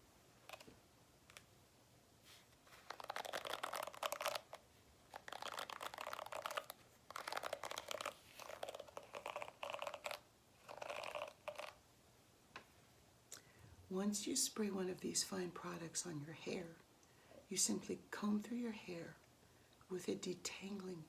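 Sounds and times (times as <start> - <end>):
brush bristles scratching: 2.3 - 11.8.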